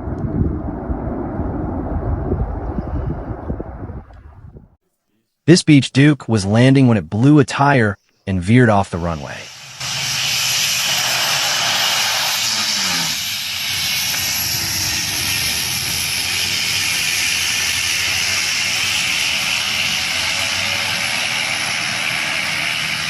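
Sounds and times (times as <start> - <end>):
propeller plane engines running: 9.2 - 23.0.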